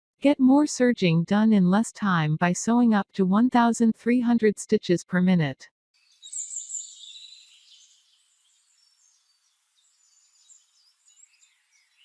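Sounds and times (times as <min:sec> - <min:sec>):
faint high-pitched chirping: 0:06.1 - 0:12.0.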